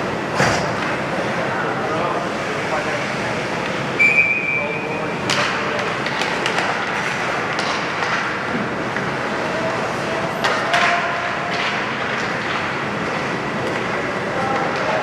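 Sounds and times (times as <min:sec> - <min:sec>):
arena and spectators hum: 0:00.0 - 0:15.0
hockey sticks and puck clacking: 0:05.2 - 0:15.0.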